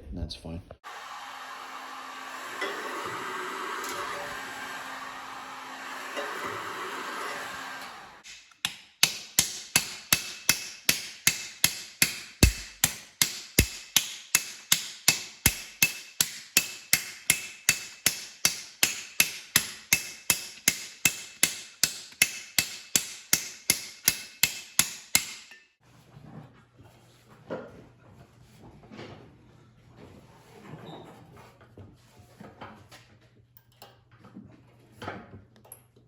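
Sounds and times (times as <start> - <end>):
hammer striking metal: 8.2 - 25.6.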